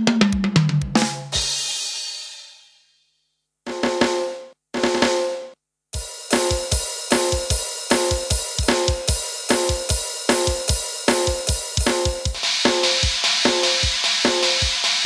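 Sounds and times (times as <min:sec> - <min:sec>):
keyboard drum rhythm: 0:00.0 - 0:02.2, 0:06.0 - 0:15.0.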